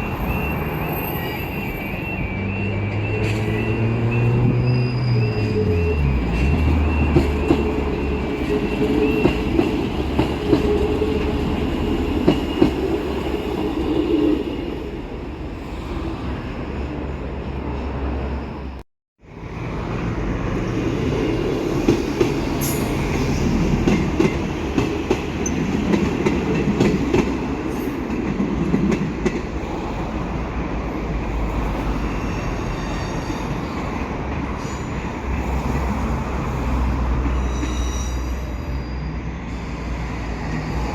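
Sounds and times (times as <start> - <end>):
train rumbling past: 0.0 - 40.9
faint wheel squeal: 0.2 - 9.4, 37.2 - 40.9.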